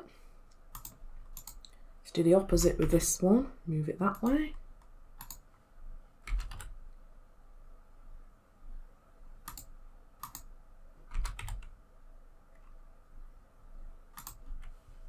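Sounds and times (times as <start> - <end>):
computer keyboard keystrokes: 0.7 - 1.8, 4.1 - 5.5, 6.2 - 6.8, 9.4 - 10.5, 11.1 - 11.8, 14.2 - 14.8.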